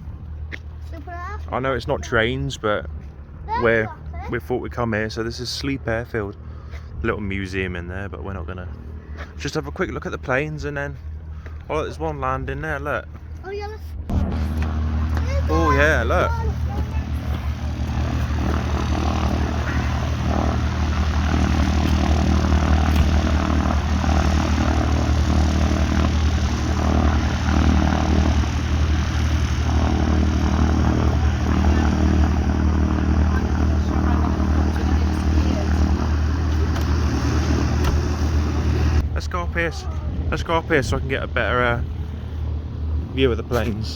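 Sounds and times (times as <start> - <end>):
propeller engine drone: 0.0 - 43.9.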